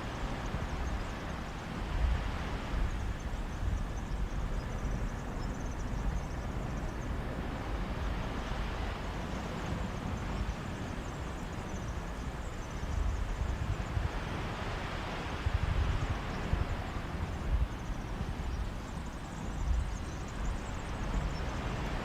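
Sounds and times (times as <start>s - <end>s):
wind rumble on microphone: 0.0s - 22.0s
sea waves washing onto beach: 7.2s - 22.0s.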